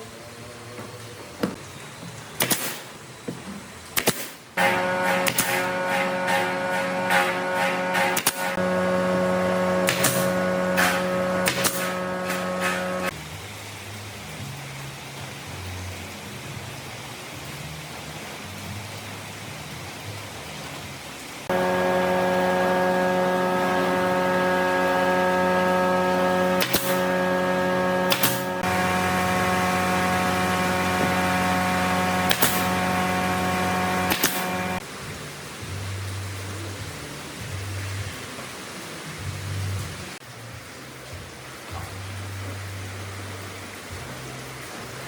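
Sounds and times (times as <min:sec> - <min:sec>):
electric motor humming: 0:04.6 - 0:13.1, 0:21.5 - 0:34.8
sharp click: 0:10.8 - 0:12.8, 0:28.1 - 0:28.4, 0:34.1 - 0:34.6.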